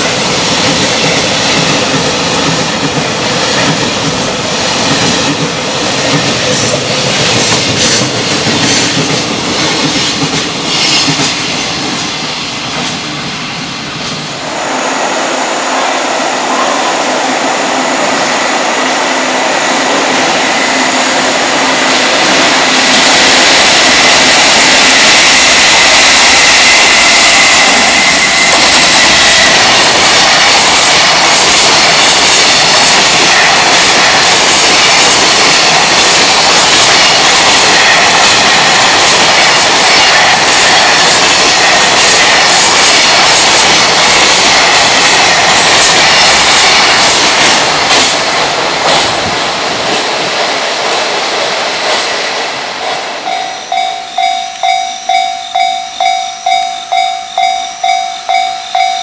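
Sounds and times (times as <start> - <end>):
wheels clacking over rail joints: 0.0 - 13.0
wheels rumbling on rail: 0.0 - 59.0.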